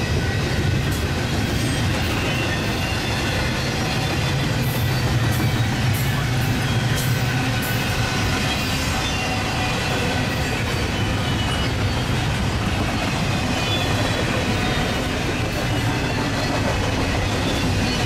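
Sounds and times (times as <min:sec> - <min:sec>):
train wheels running on rails: 0:00.0 - 0:18.0.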